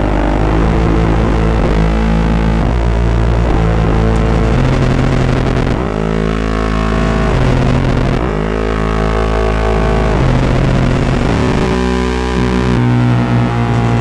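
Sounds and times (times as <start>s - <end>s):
buzzing synth drone: 0.0s - 14.0s.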